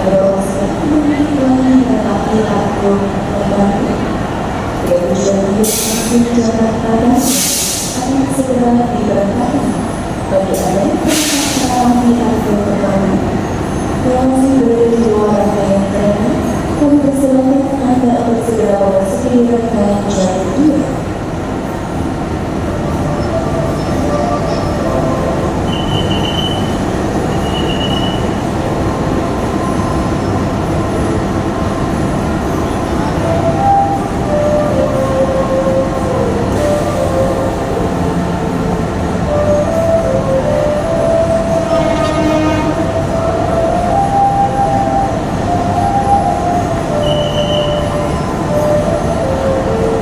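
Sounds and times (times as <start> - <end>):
train rumbling on rails: 0.0 - 50.0
high-pitched wheel squeals: 25.6 - 28.4, 47.0 - 49.7.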